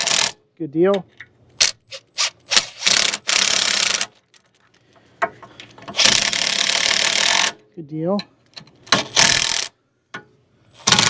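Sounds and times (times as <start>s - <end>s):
cordless power tool running nuts: 1.9s - 4.2s, 5.9s - 7.5s, 9.1s - 9.7s.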